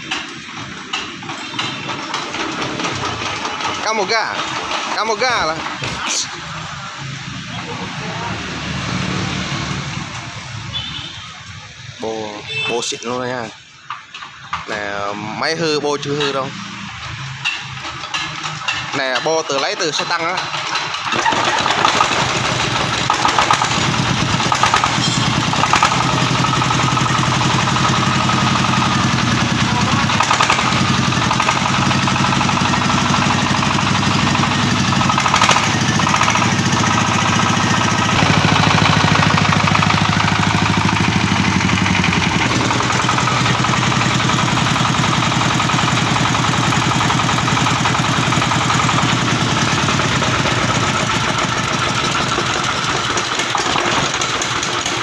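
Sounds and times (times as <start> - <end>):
diesel engine chugging: 0.0 - 10.9, 17.8 - 55.0.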